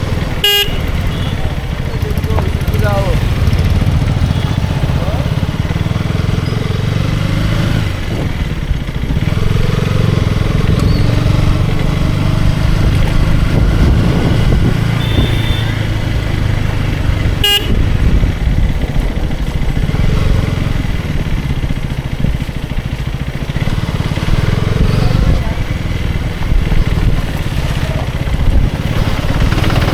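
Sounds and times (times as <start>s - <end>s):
motorcycle engine running: 0.0s - 29.9s
wind noise on microphone: 10.2s - 22.9s, 24.0s - 29.9s.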